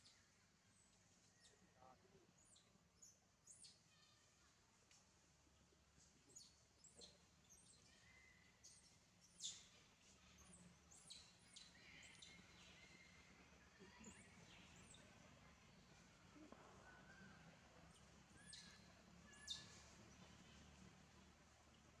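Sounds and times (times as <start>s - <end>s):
low steady hiss: 0.0s - 22.0s
birds chirping: 6.4s - 22.0s.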